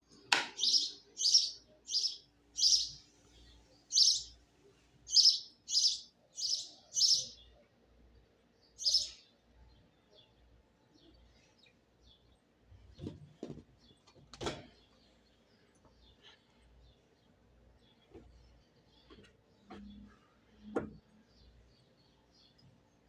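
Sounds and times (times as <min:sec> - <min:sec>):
bird chirping: 0:00.5 - 0:04.4, 0:05.0 - 0:07.6, 0:08.6 - 0:12.5.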